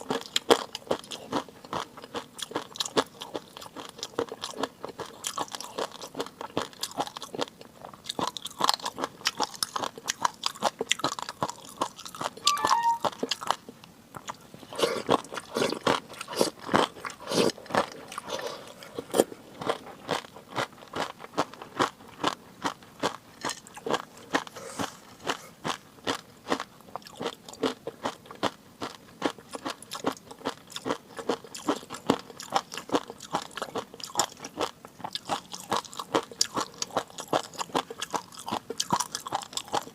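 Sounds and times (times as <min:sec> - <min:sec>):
chewing with crunches: 0:00.0 - 0:12.4, 0:13.0 - 0:39.9
faint squeak: 0:12.4 - 0:13.2.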